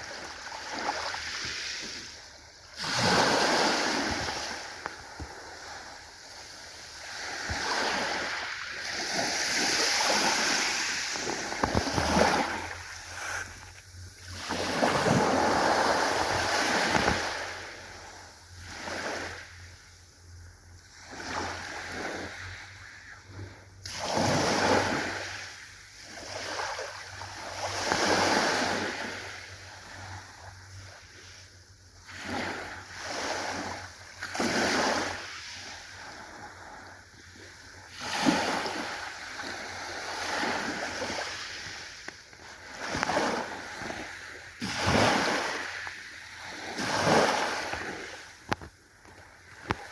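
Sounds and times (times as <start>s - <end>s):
ocean surf breaking: 2.8s - 5.9s, 7.0s - 17.8s.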